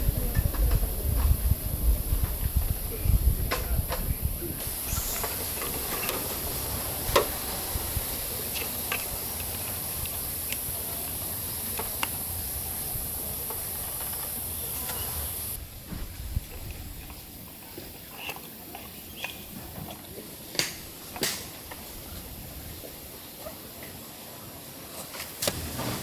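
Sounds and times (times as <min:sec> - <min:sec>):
raindrops tapping: 0:00.0 - 0:18.2
rain hiss: 0:00.0 - 0:26.0.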